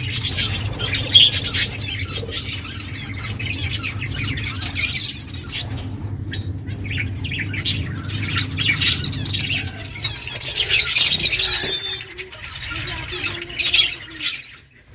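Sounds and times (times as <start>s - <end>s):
finches chirping: 0.0s - 14.9s
steady low hum: 0.0s - 14.9s.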